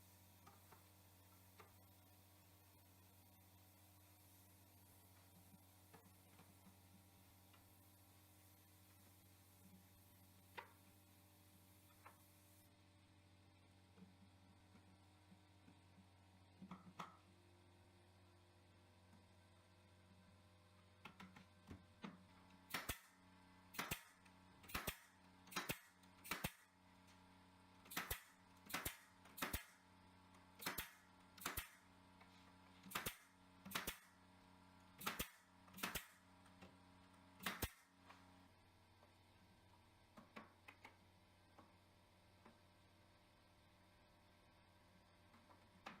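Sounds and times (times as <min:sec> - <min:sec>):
nails hammered into wood: 0:22.6 - 0:26.8, 0:27.8 - 0:29.9, 0:30.5 - 0:31.9, 0:32.8 - 0:34.2, 0:35.0 - 0:36.3, 0:37.4 - 0:38.0.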